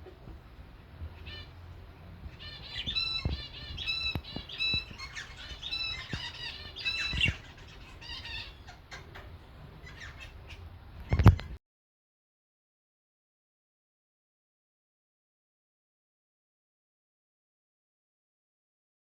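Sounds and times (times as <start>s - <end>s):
caged birds calling: 0.0s - 11.6s.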